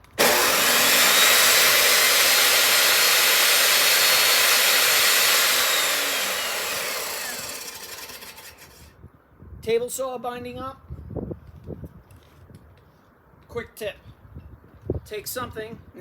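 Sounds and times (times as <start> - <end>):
table saw whining: 0.0 - 8.9.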